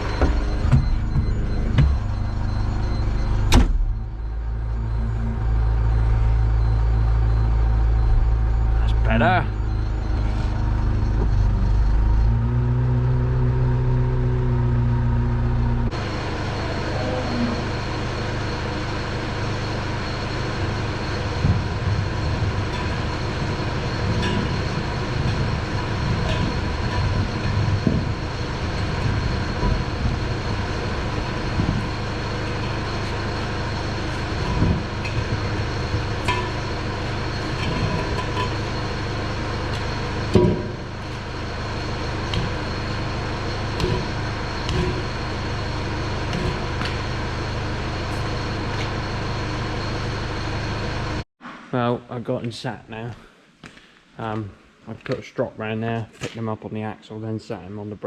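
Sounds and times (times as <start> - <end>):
machine engine running: 0.0 - 51.2
metallic knocks: 24.0 - 41.3.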